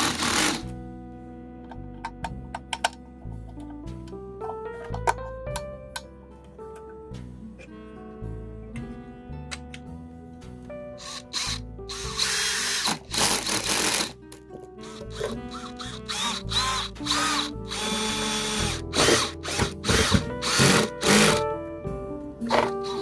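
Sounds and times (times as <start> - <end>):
background music: 0.0 - 23.0
power tool motor bursts: 11.0 - 14.1, 14.8 - 21.4.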